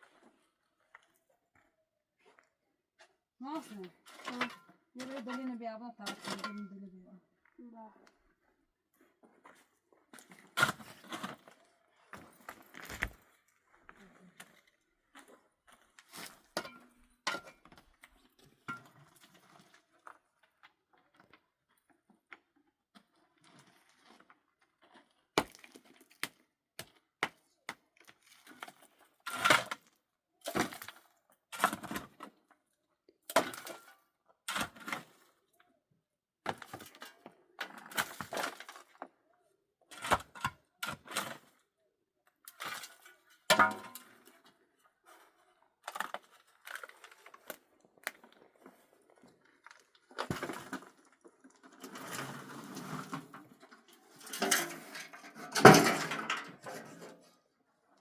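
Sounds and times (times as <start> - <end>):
objects scraping: 46.0 - 57.4.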